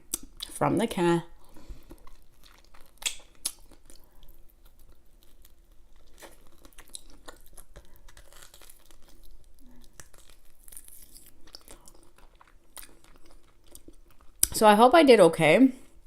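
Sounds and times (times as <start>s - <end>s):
person chewing food: 0.0s - 0.6s, 1.3s - 14.6s
mouth clicks and smacks: 2.4s - 4.0s.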